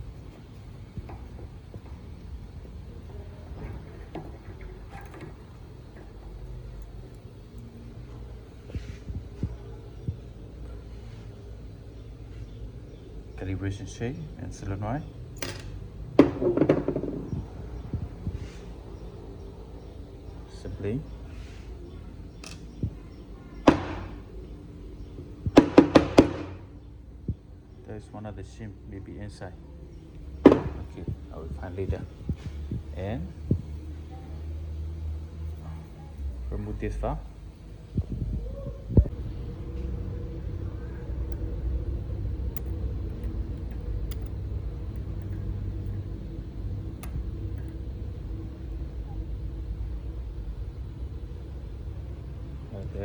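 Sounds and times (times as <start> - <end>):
low motor rumble: 0.0 - 25.6, 26.2 - 53.0
sharp metallic knocks: 23.7 - 24.3
metal parts clicking: 42.4 - 46.1.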